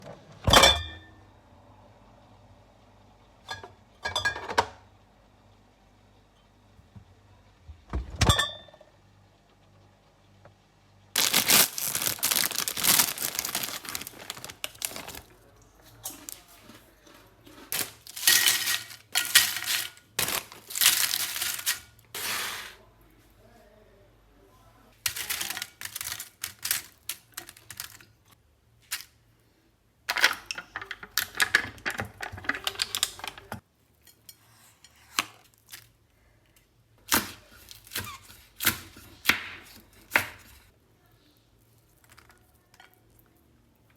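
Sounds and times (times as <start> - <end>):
kitchen clattering: 3.4 - 4.8, 11.2 - 15.3, 16.0 - 22.8, 25.0 - 28.3, 30.1 - 34.4
rustling and crinkling: 11.2 - 22.8, 25.0 - 29.2.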